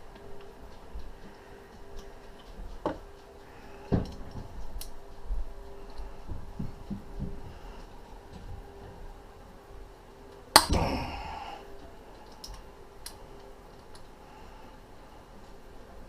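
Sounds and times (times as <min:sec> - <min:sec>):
steady faint hum: 0:00.0 - 0:16.0
hand tools and metal parts clicking: 0:11.8 - 0:14.2.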